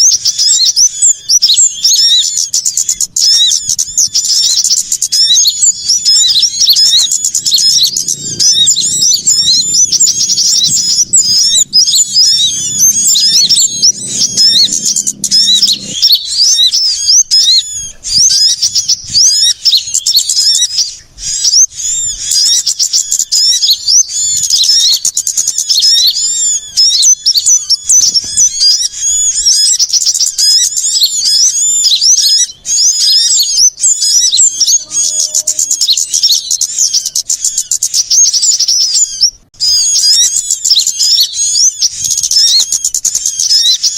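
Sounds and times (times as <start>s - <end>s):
small songbirds chirping: 0.0s - 43.9s
faint low hum: 2.1s - 22.3s.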